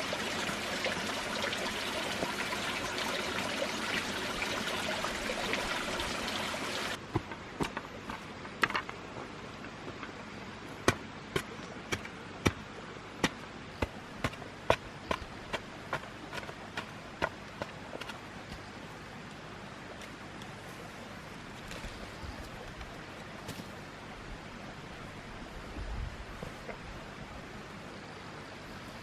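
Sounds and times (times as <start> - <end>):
water trickling: 0.0 - 7.0.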